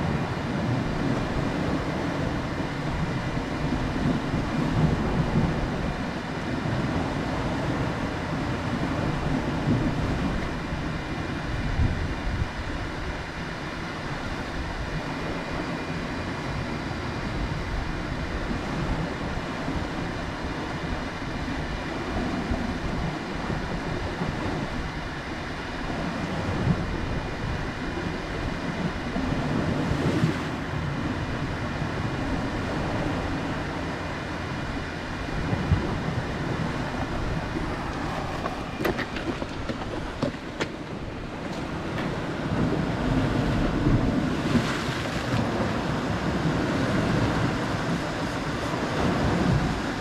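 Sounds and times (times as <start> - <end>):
wind: 0.0 - 50.0
surf: 14.9 - 50.0.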